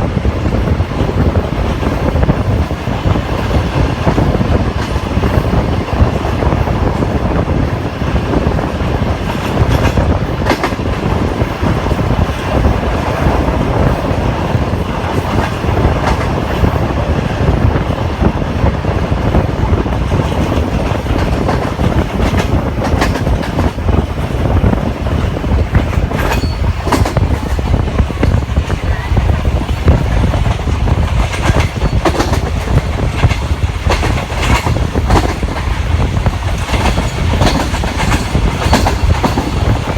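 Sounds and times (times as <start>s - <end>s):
train rumbling on track: 0.0s - 39.9s
wheels clicking over rail joints: 19.3s - 39.9s.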